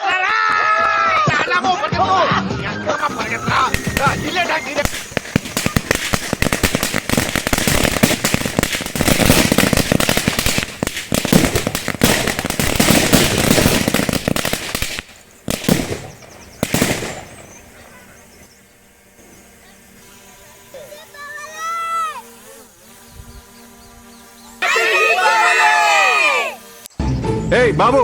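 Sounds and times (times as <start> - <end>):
firecracker bangs: 3.0 - 18.0
firecrackers rapid cracks: 3.0 - 18.5.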